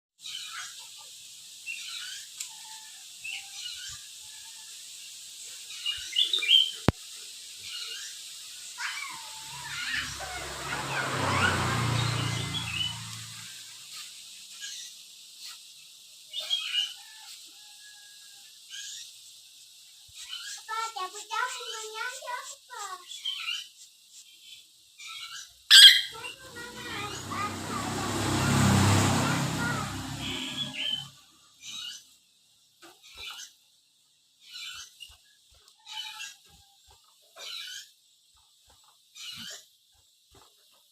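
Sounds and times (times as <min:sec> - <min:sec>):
parrot chirping and squawking: 0:07.6 - 0:15.0, 0:25.0 - 0:28.4, 0:29.6 - 0:32.2, 0:34.4 - 0:35.2, 0:35.8 - 0:36.5, 0:37.3 - 0:38.0.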